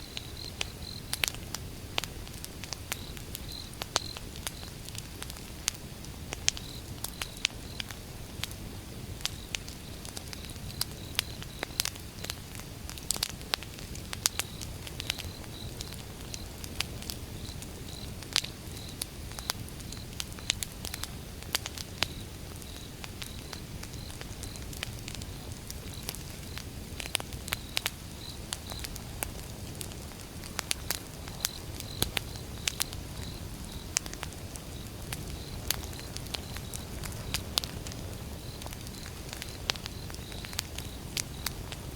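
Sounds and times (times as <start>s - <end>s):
wood fire crackling and popping: 0.0s - 41.9s.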